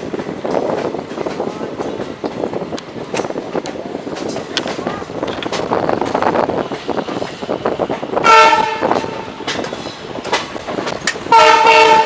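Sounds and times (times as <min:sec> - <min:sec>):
train rumbling on rails: 0:00.0 - 0:12.0
train horn: 0:08.2 - 0:09.4, 0:11.3 - 0:12.0.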